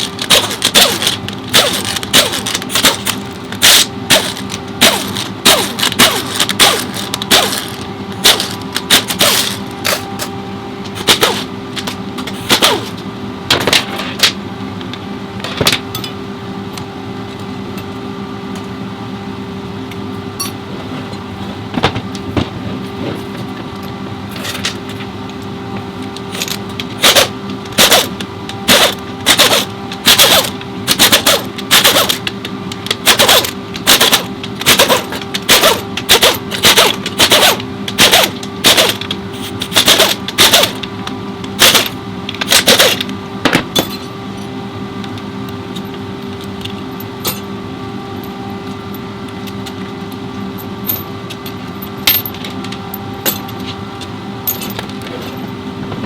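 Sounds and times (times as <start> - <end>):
workshop hum: 0.0 - 56.0.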